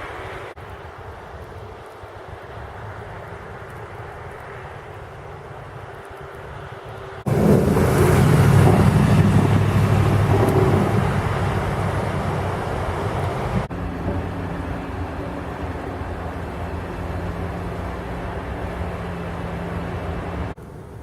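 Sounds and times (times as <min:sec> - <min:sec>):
vehicle engine and road noise: 0:00.0 - 0:21.0
quiet engine hum: 0:05.9 - 0:21.0.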